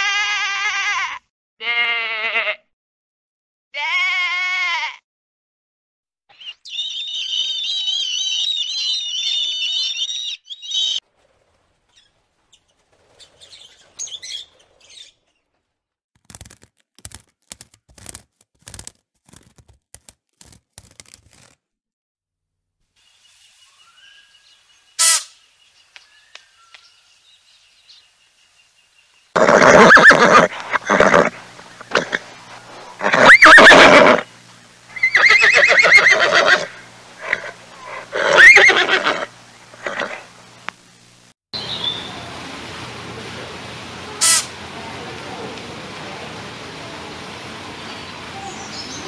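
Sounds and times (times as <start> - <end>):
high warbling animal call: 6.3 - 11.0, 33.0 - 34.3, 34.9 - 40.2
macaws squawking: 29.4 - 34.2, 34.9 - 40.2.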